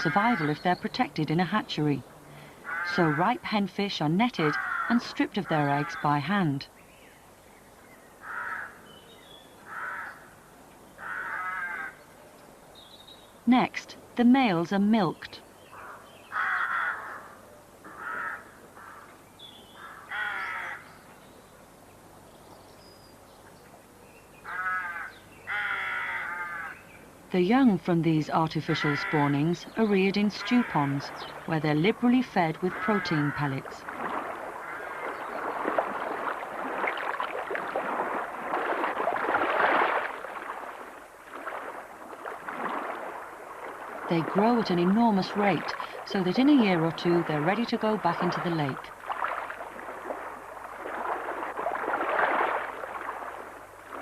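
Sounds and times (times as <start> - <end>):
harsh cawing bird calls: 0.0 - 0.8, 2.3 - 3.4, 4.4 - 6.3, 8.2 - 9.0, 9.6 - 12.1, 15.6 - 21.0, 24.4 - 27.0, 28.8 - 31.5, 32.6 - 36.8
fish splashing at water surface: 33.7 - 44.6, 48.9 - 54.0.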